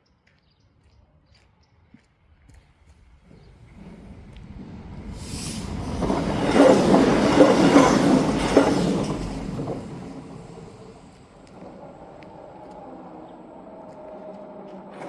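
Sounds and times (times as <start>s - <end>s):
train passing: 2.8s - 15.0s
wheels clacking over rail joints: 3.2s - 15.0s.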